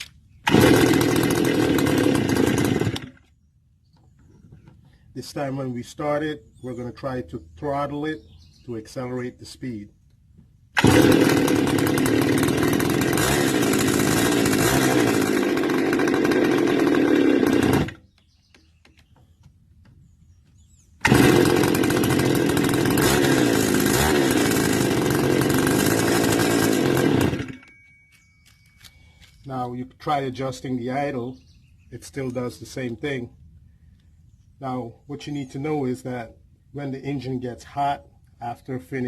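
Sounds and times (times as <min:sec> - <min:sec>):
brush cutter engine running: 0:00.0 - 0:03.3, 0:10.8 - 0:18.4, 0:21.0 - 0:27.7.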